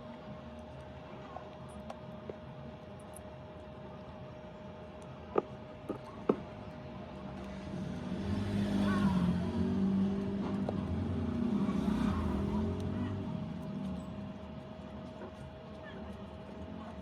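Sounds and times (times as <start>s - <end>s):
vehicle engine passing: 7.4s - 14.2s.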